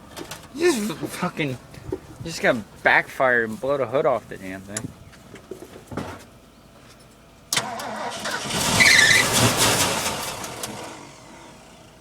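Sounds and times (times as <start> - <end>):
engine cranking on starter: 7.5 - 11.8
engine starting and dying: 7.5 - 11.9.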